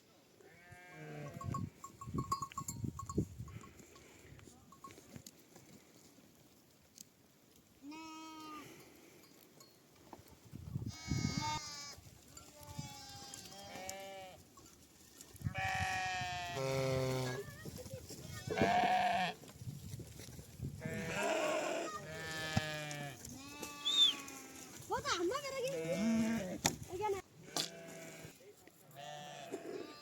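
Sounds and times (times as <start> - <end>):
sheep bleating: 0.4 - 1.5, 7.8 - 8.8, 10.9 - 14.4, 15.5 - 17.5, 18.4 - 19.4, 20.8 - 24.8, 25.6 - 26.6, 27.4 - 28.4, 29.0 - 30.0.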